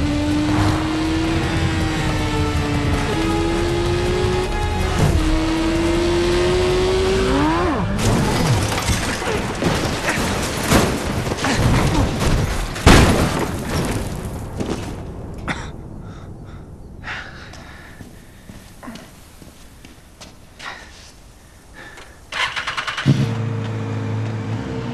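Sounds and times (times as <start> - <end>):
motorcycle engine revving: 0.0 - 8.6, 22.4 - 24.9
crashing breaking impacts: 8.0 - 15.4.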